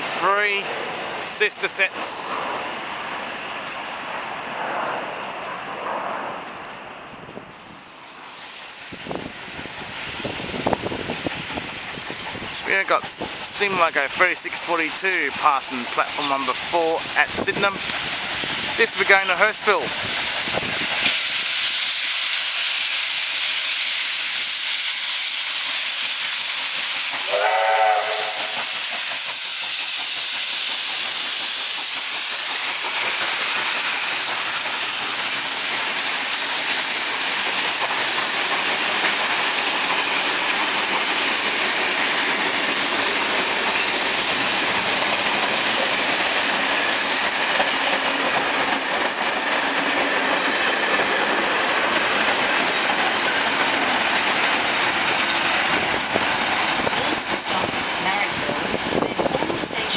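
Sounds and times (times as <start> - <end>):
train rumbling: 0.0 - 59.9
steam hissing: 8.4 - 59.9
steam whistle blast: 27.3 - 28.6.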